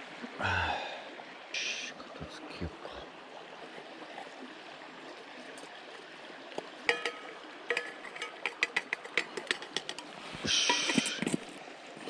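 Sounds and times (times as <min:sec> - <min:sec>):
stream running: 0:00.0 - 0:12.0
sharp metallic clanks: 0:06.9 - 0:09.8, 0:10.5 - 0:11.2.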